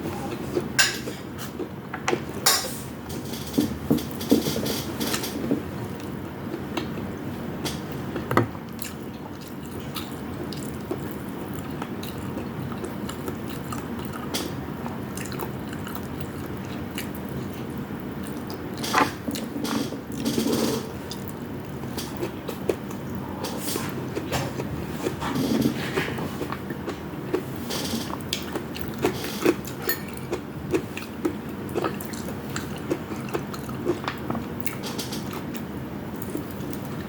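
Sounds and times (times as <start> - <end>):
person chewing food: 7.9 - 37.0.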